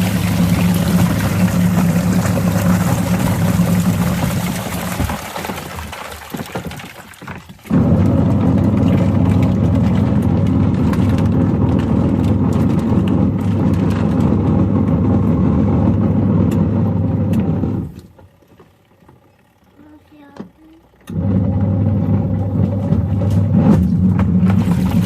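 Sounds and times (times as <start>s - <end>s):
plastic toys rattling in drum: 0.0s - 15.2s
washing machine motor humming: 0.0s - 25.0s.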